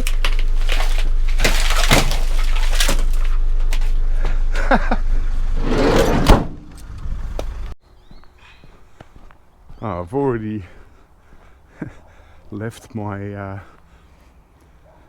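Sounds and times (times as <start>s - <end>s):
clatter of scrap electronics: 0.0s - 4.0s
car idling rumble: 0.0s - 5.6s
sharp bang: 5.6s - 7.0s.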